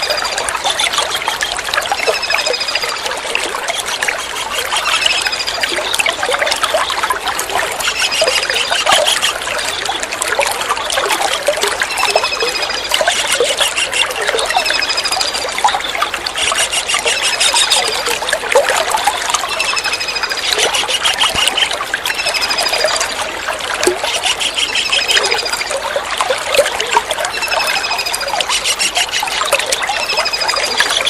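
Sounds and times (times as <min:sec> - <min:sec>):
trickling water: 0:00.0 - 0:31.0
kingfisher calls: 0:12.9 - 0:18.0, 0:19.6 - 0:22.9, 0:24.0 - 0:25.6, 0:27.4 - 0:29.4.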